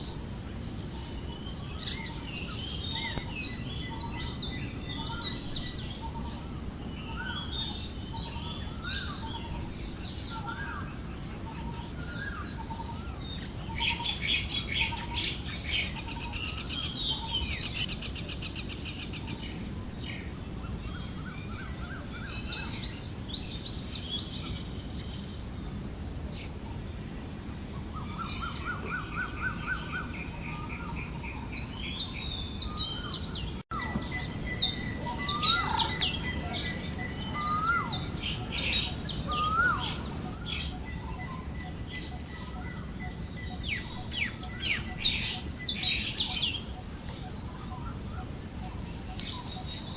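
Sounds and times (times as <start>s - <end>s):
bird chirping: 0.0s - 25.4s, 26.4s - 49.9s
low breeze: 0.0s - 49.9s
bird trills: 33.7s - 46.6s.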